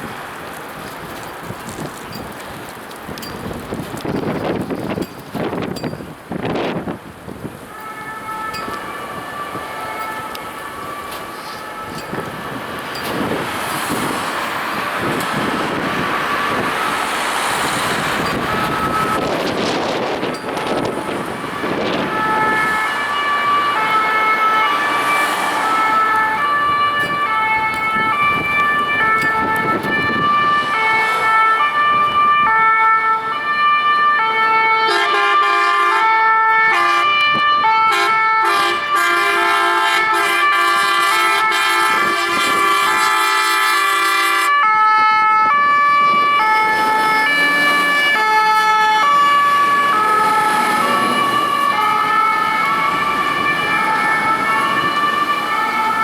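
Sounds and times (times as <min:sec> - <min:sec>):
fire engine two-tone siren: 0:03.2 - 0:56.0
air horns blasting: 0:07.6 - 0:14.3, 0:15.0 - 0:33.3, 0:34.2 - 0:56.0.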